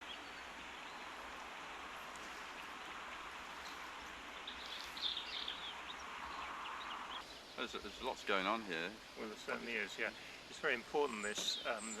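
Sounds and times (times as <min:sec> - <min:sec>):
outdoor background hiss: 0:00.0 - 0:12.0
faint bird chirps: 0:02.1 - 0:08.1, 0:10.0 - 0:12.0.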